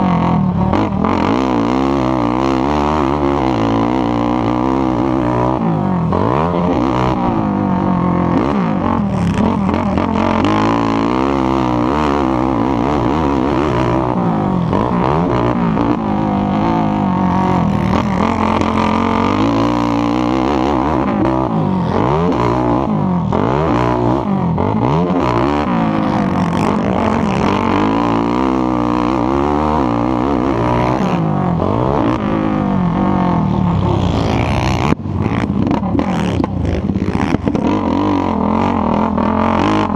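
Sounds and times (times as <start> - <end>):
atv engine revving: 0.0 - 39.9
other engines: 0.0 - 39.9.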